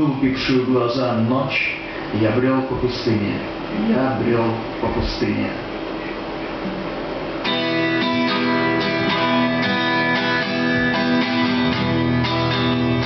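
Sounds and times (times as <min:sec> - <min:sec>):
acoustic guitar strumming: 0:06.6 - 0:13.0.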